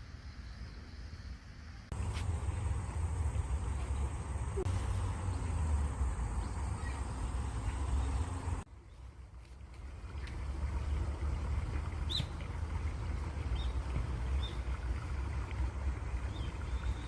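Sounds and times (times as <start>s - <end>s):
running water rumbling: 2.0s - 17.0s
bird chirping: 3.3s - 9.1s, 12.1s - 12.4s.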